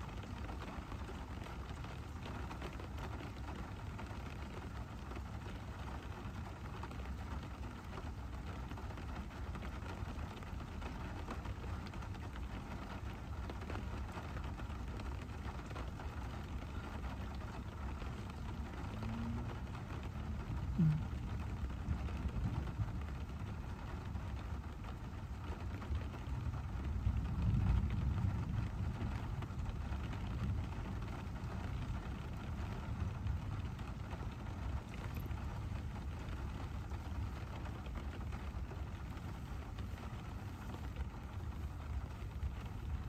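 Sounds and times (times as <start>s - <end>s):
rain drops ticking on car: 0.0s - 43.0s
car road rumble: 16.0s - 25.2s.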